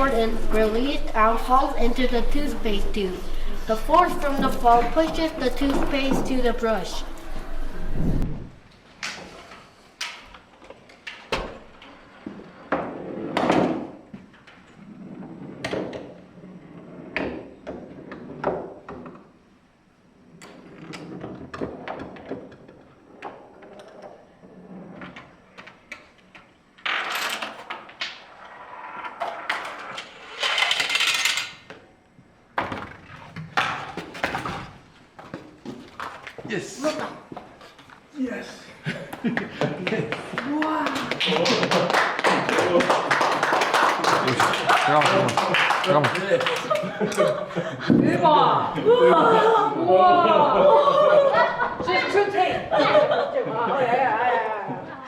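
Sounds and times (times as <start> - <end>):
clicks and clatters of small parts: 29.5 - 31.7.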